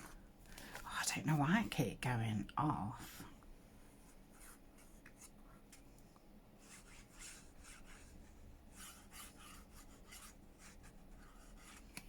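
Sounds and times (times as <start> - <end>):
rubbing strokes on paper: 6.6 - 12.0.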